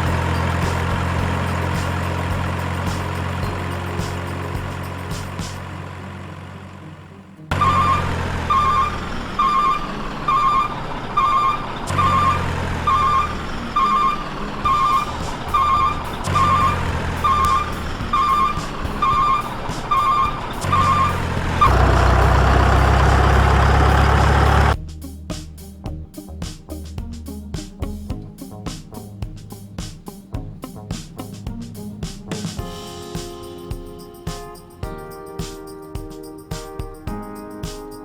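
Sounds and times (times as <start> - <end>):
low engine rumble: 0.0 - 32.6
truck reversing alarm beeping: 7.5 - 24.8
loud steady rumble and hiss: 19.6 - 24.8.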